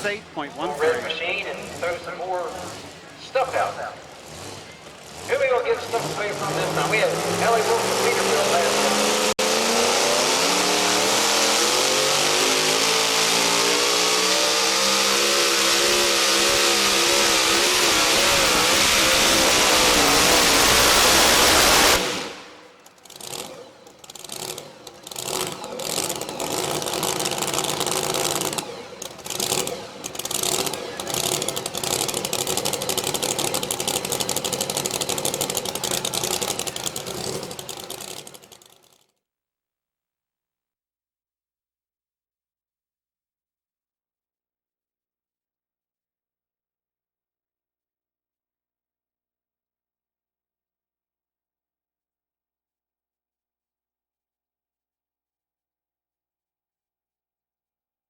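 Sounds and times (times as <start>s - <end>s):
truck engine at full throttle: 0.0s - 39.0s.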